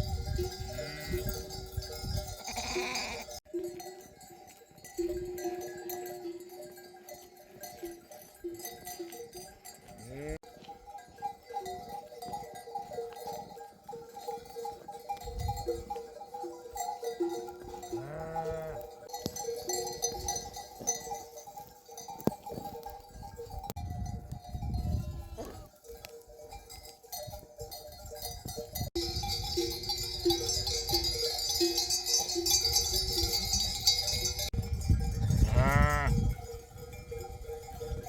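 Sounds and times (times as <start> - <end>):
sheep bells clinking: 0.0 - 38.0
sheep bleating: 2.4 - 3.4, 17.9 - 18.9, 25.0 - 25.7, 35.4 - 36.2.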